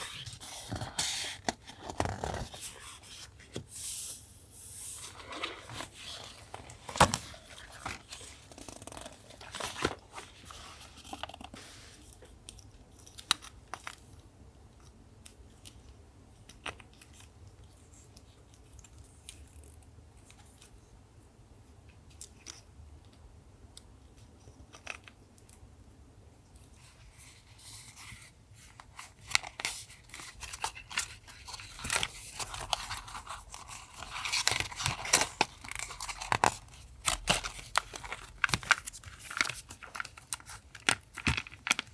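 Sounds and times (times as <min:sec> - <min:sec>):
paper and stickers rustling: 0:00.0 - 0:13.5, 0:26.8 - 0:41.9
paper crinkling and tearing: 0:05.0 - 0:11.8, 0:27.2 - 0:41.9.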